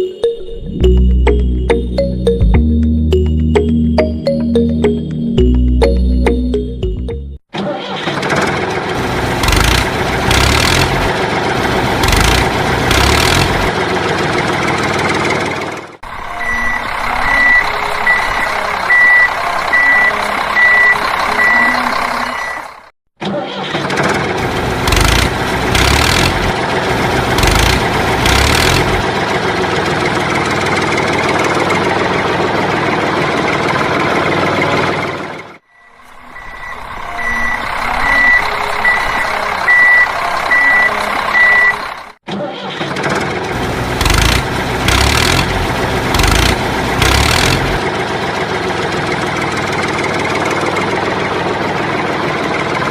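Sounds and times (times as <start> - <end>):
truck engine revving: 8.1 - 22.9, 23.8 - 35.6, 36.4 - 42.2, 42.9 - 52.9
reversing beeper: 16.1 - 22.9, 35.6 - 42.2.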